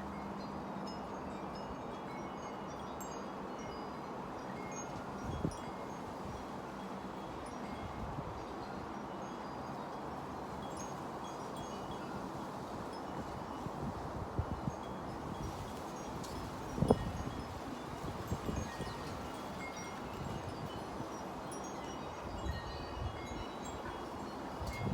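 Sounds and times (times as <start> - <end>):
wind chimes ringing: 0.1 - 24.9.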